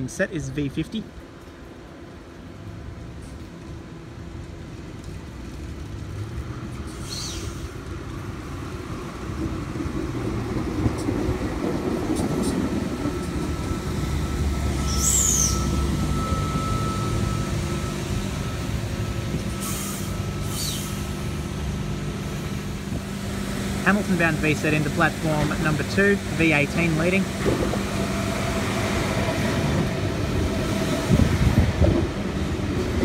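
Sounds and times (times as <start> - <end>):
train rumble: 0.0 - 33.0
wheels squealing: 6.7 - 7.8, 12.0 - 21.4
thin steady whine: 12.4 - 28.7.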